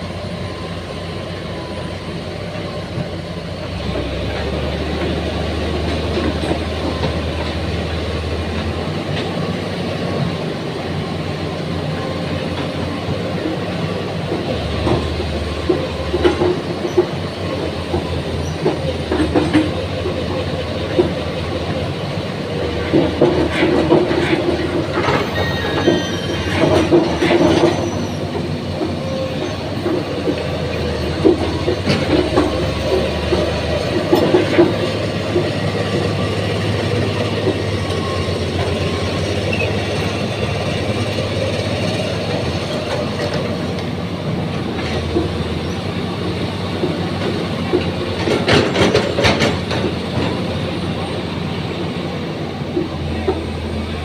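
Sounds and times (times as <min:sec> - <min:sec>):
excavator engine hum: 0:00.0 - 0:54.0
metal clanking and knocking: 0:14.3 - 0:21.8, 0:22.6 - 0:45.9, 0:46.7 - 0:51.1
high squeals: 0:25.2 - 0:26.8.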